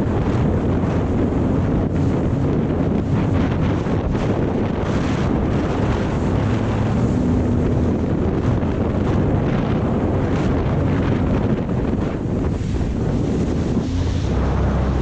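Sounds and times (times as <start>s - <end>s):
jet ski engine running: 0.0s - 15.0s
wind buffeting microphone: 0.0s - 15.0s.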